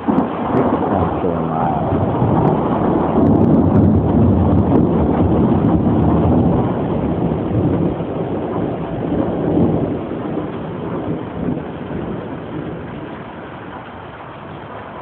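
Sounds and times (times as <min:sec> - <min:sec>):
steady rain: 0:00.0 - 0:15.0
thunder rumbling: 0:00.0 - 0:15.0.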